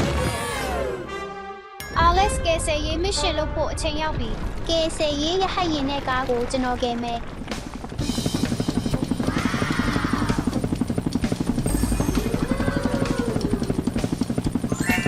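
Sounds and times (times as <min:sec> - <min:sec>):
helicopter rotor chopping: 0:04.4 - 0:15.0.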